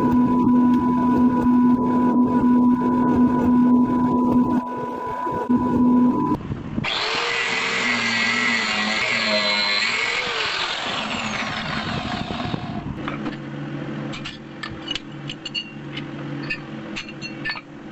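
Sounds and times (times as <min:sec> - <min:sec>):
low steady hum: 0:00.0 - 0:17.9
power tool grinding steel: 0:06.8 - 0:12.9.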